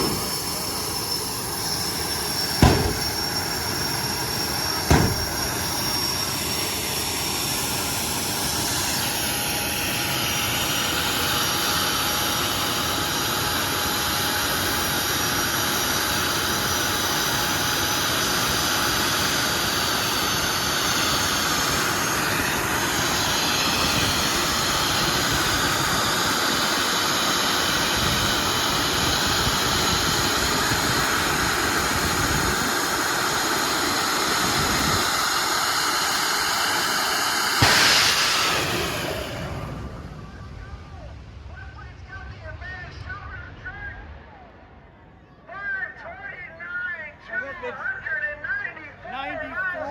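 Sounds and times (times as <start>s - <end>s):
sharp bangs: 0.0s - 6.1s, 37.6s - 42.4s
jet engine rushing and whining: 0.0s - 45.0s.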